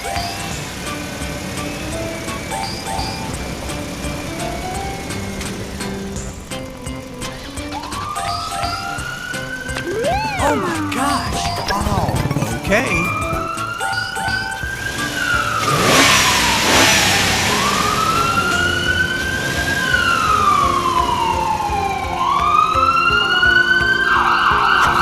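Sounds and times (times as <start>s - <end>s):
police siren wailing: 7.6s - 25.0s.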